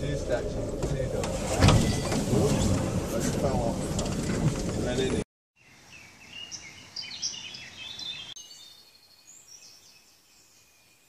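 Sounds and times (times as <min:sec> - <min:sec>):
faint songbirds chirping: 0:04.8 - 0:11.0.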